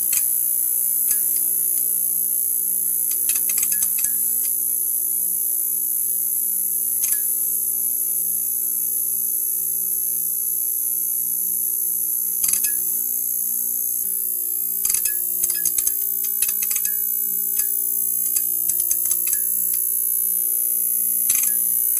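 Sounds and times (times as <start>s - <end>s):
neon sign buzzing: 12.1s - 21.9s
electrical crackling clicks: 14.8s - 19.9s, 21.3s - 21.6s.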